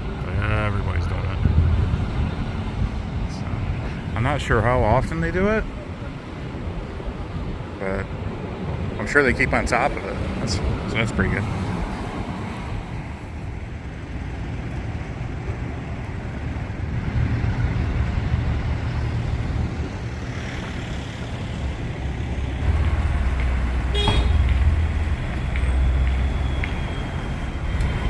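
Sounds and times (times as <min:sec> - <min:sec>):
road traffic rumble: 0:00.0 - 0:28.0
car horn beep: 0:23.9 - 0:24.5.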